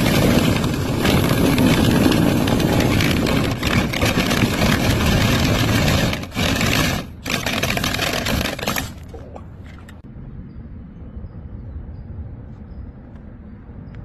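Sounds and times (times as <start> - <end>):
motor and air rushing: 0.0 - 10.1.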